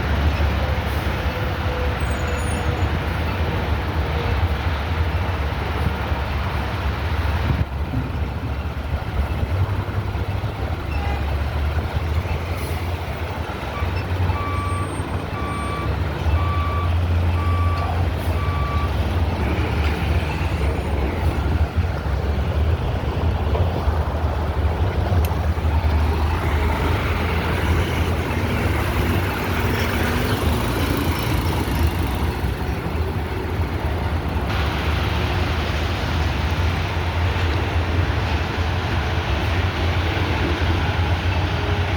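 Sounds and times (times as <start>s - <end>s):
diesel truck engine rumbling: 0.0s - 41.9s
backup alarm beeping: 13.8s - 19.0s.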